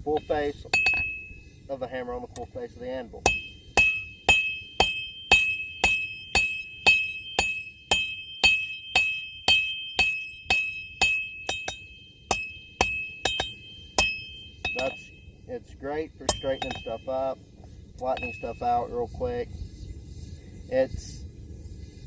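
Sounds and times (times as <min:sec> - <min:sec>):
hammer ringing on anvil: 0:00.0 - 0:01.4, 0:03.2 - 0:15.3, 0:16.2 - 0:17.4, 0:18.0 - 0:19.0.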